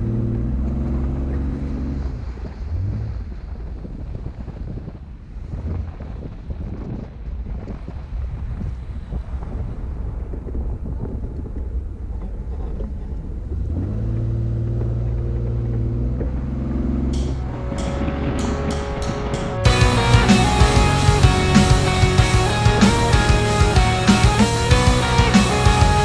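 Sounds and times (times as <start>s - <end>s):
engine drone: 0.0s - 3.6s, 11.6s - 26.0s
vehicle rumbling over rough track: 0.0s - 7.4s, 9.9s - 26.0s
wind noise: 0.0s - 16.5s.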